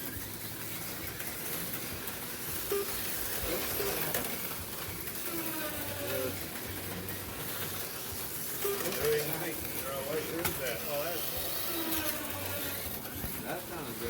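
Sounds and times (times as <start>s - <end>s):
slot car motors buzzing: 0.0s - 14.0s
faint voices: 3.3s - 14.0s.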